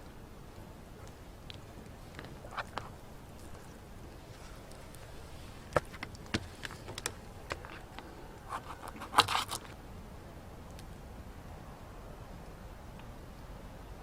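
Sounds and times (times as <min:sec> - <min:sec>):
objects being handled: 0:01.5 - 0:09.8.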